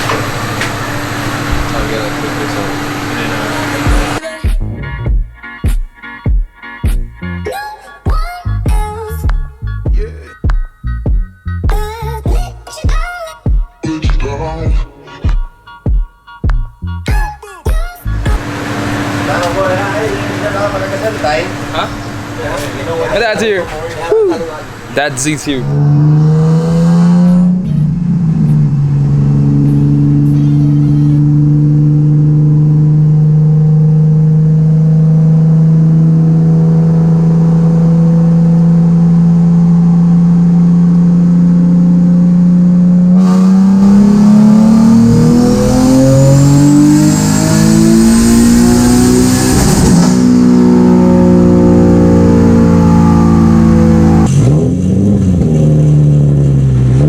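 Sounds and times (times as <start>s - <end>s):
car engine revving on dyno: 0.0s - 4.2s, 18.2s - 57.0s.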